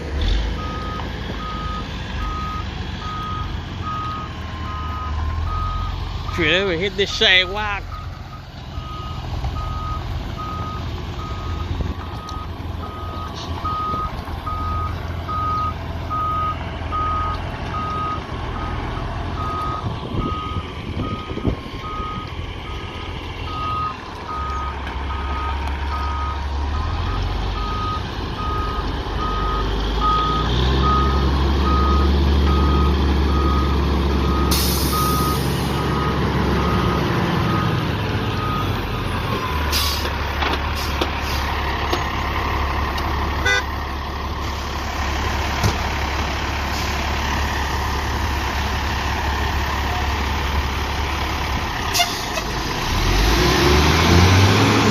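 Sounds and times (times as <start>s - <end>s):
diesel engine running: 0.0s - 54.9s
backup alarm beeping: 8.8s - 18.8s, 23.5s - 26.4s, 27.1s - 37.8s.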